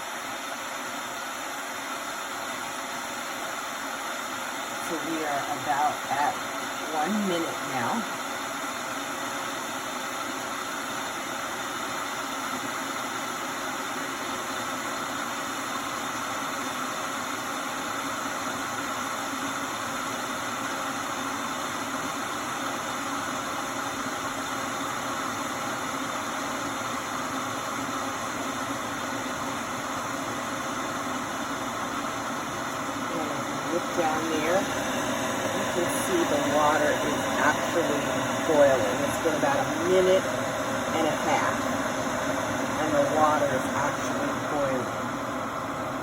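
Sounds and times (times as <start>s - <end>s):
electric kettle heating water: 0.0s - 46.0s.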